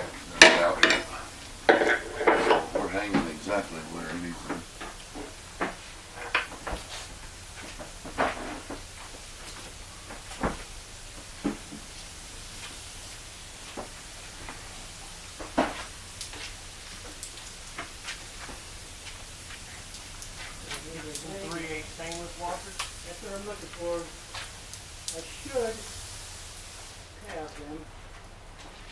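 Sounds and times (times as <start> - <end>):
tools knocking and clunking: 0.0 - 3.7.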